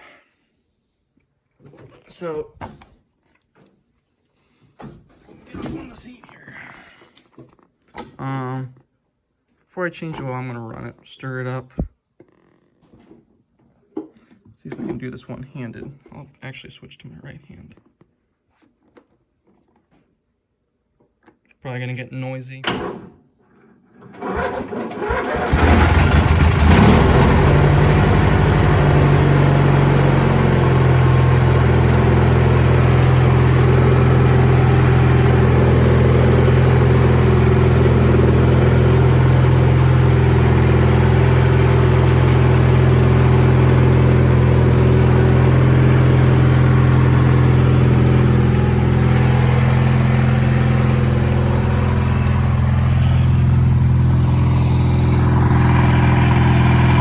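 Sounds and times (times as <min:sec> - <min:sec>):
garden tractor engine starting: 0:24.0 - 0:57.0.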